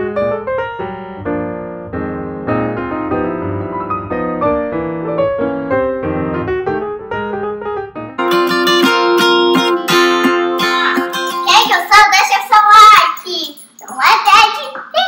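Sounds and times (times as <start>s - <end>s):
gentle piano melody: 0.0s - 11.6s.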